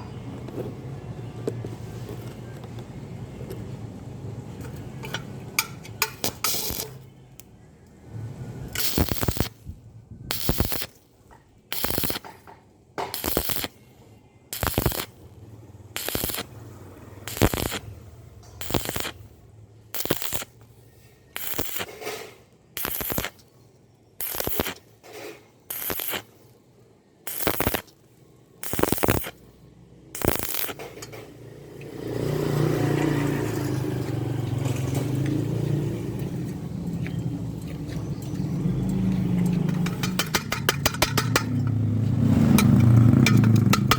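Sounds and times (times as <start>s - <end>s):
welding arc crackling and hissing: 6.1s - 7.0s, 8.8s - 11.0s, 11.7s - 12.4s, 13.1s - 13.8s, 14.5s - 15.2s, 15.9s - 16.6s, 17.2s - 17.9s, 18.6s - 20.6s, 21.3s - 23.4s, 24.2s - 26.4s, 27.2s - 28.0s, 28.6s - 29.5s, 30.2s - 30.9s.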